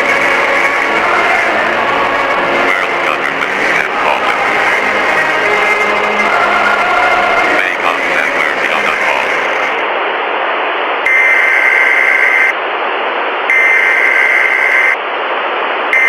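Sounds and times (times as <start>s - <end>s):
long electronic beep: 11.1s - 12.6s, 13.5s - 15.0s.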